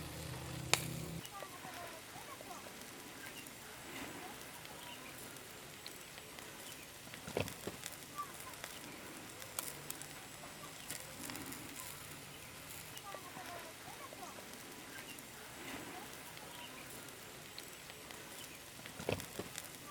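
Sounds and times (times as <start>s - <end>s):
cooking fire crackling: 0.0s - 19.9s
birds chirping faintly: 4.2s - 7.2s, 10.2s - 18.8s.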